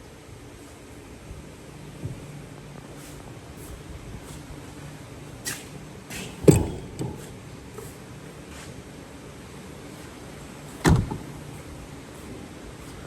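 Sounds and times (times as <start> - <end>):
dull thumps: 6.1 - 7.4
small knock: 6.4 - 7.3.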